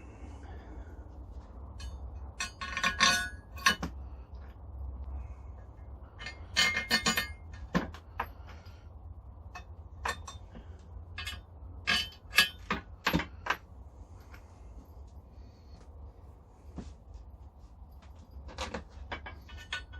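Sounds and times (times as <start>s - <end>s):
metal parts clinking and knocking: 1.7s - 4.6s, 5.6s - 8.7s, 9.4s - 15.0s, 18.0s - 19.9s.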